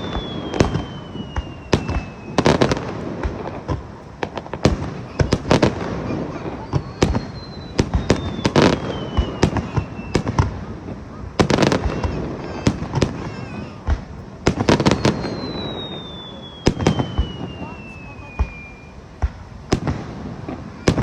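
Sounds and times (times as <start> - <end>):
firework whistle sliding down: 0.0 - 2.9, 6.5 - 10.3, 14.7 - 19.0
fireworks bursting: 0.0 - 21.0.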